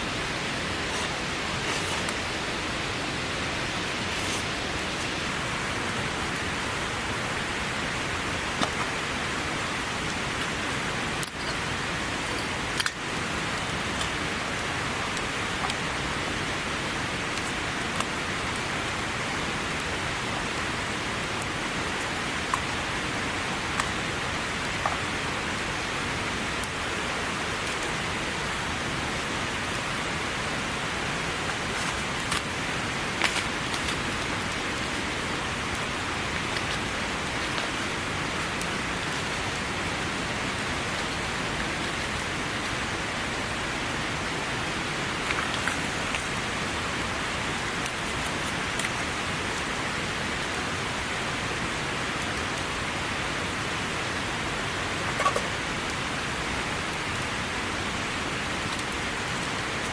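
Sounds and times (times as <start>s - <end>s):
heavy rain downpour: 0.0s - 59.9s.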